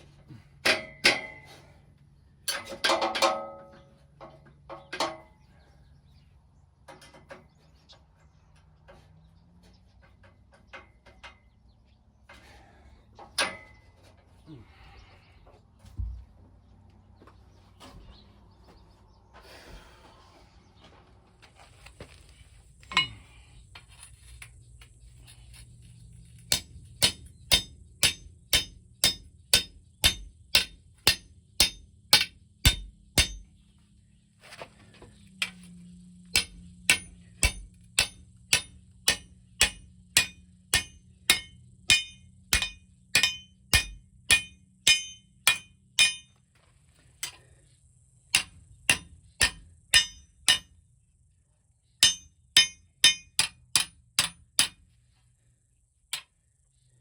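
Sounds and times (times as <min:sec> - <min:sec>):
hammer striking metal: 0:00.6 - 0:01.5, 0:26.5 - 0:33.5, 0:36.3 - 0:46.4, 0:48.3 - 0:50.8, 0:52.0 - 0:54.8.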